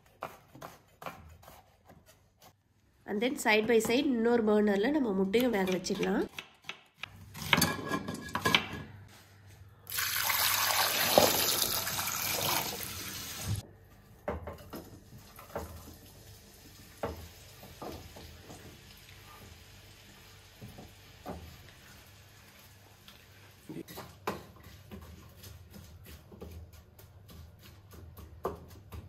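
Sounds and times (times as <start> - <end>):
tap water running into pot: 9.9 - 13.6.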